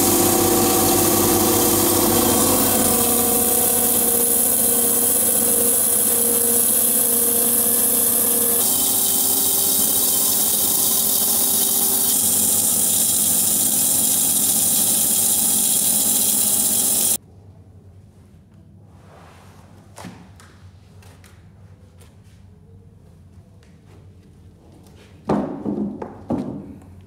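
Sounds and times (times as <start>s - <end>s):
sawmill milling a log: 0.0s - 17.2s.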